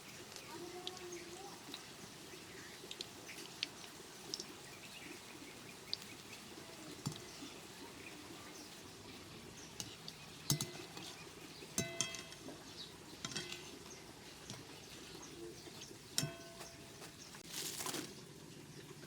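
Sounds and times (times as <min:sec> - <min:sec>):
dishes and utensils clinking: 0:09.8 - 0:14.7, 0:16.2 - 0:17.1
dishes clattering: 0:09.8 - 0:14.7, 0:16.2 - 0:17.0.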